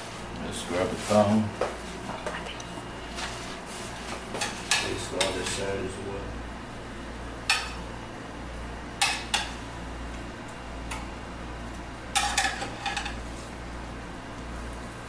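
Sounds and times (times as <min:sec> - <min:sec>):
low steady hum: 0:00.0 - 0:15.0
metal pan and utensils clacking: 0:04.4 - 0:05.6, 0:12.2 - 0:13.2.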